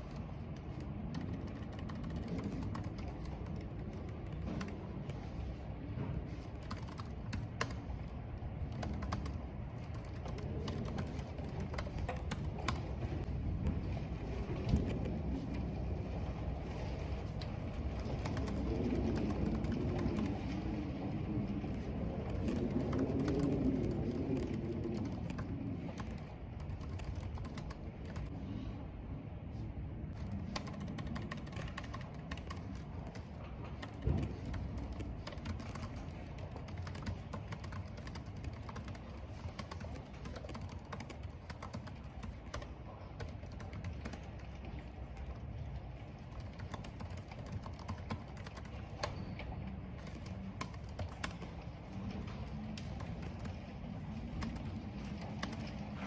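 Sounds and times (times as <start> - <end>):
computer keyboard typing: 0.0 - 5.4, 6.3 - 13.2, 17.9 - 20.7, 21.7 - 28.3, 30.1 - 44.5, 46.3 - 49.2, 49.9 - 51.8, 52.7 - 56.0
low background rumble: 0.0 - 56.0.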